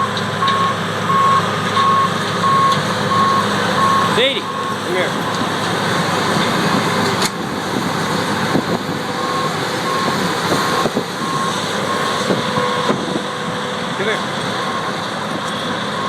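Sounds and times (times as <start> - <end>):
heavy farm machinery running: 0.0 - 16.0
backup alarm beeping: 0.4 - 5.4, 9.2 - 13.0.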